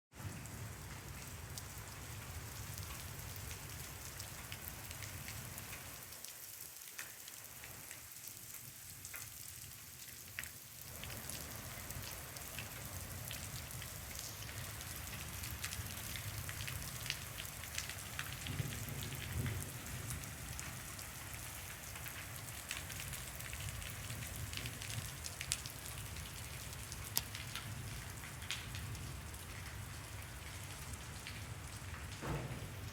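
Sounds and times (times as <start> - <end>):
raindrops ticking on surfaces: 0.1 - 32.9
heavy rain hiss: 10.8 - 27.3.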